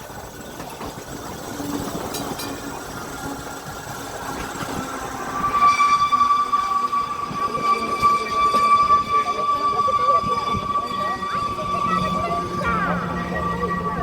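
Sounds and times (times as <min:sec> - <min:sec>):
electric tram on rails: 0:00.0 - 0:14.0
loud high-pitched tone: 0:04.8 - 0:14.0.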